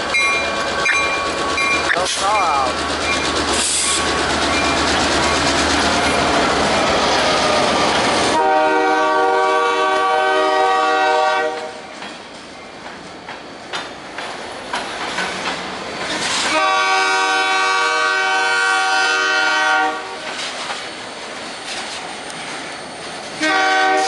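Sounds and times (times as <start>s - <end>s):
train wheel and engine noise: 0.0s - 24.0s
train horn blast: 8.3s - 11.8s, 16.5s - 20.2s, 23.4s - 24.0s.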